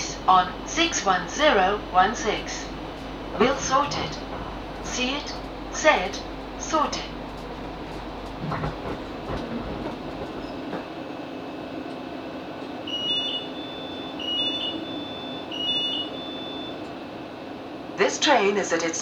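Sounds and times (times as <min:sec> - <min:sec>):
knocks and clunks: 0:00.0 - 0:11.0
train stopping: 0:00.0 - 0:19.0
door warning beeps: 0:12.9 - 0:17.0.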